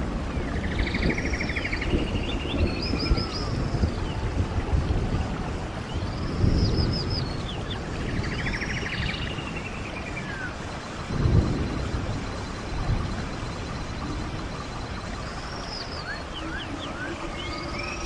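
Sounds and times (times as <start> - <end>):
stream water running: 0.0 - 18.0
birds singing: 0.2 - 18.0
bird trill: 15.3 - 18.0.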